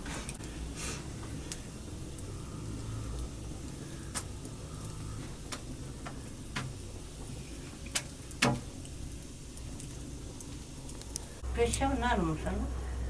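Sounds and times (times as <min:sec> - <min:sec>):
sharp clicks and knocks: 0:05.2 - 0:07.3, 0:07.9 - 0:08.7.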